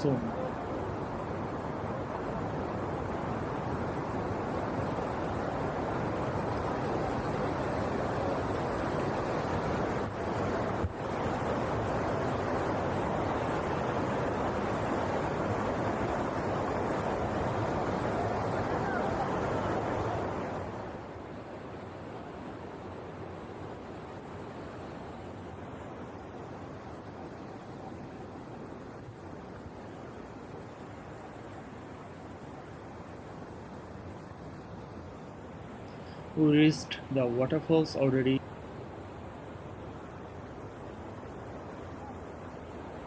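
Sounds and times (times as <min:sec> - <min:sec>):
rushing water: 0:00.0 - 0:43.0.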